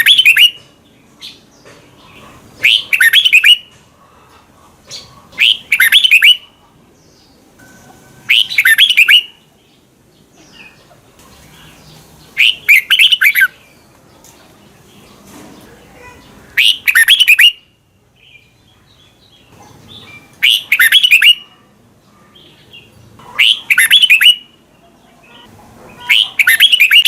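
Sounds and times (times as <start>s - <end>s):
bird singing whistled notes: 0.0s - 0.6s, 2.6s - 3.7s, 5.4s - 6.5s, 8.2s - 9.4s, 12.4s - 13.6s, 16.6s - 17.7s, 20.4s - 21.4s, 23.4s - 24.6s, 26.1s - 27.0s.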